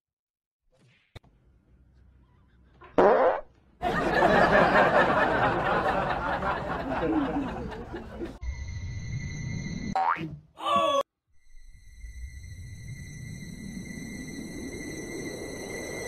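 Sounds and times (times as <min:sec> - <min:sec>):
person laughing hard: 0:04.0 - 0:08.4.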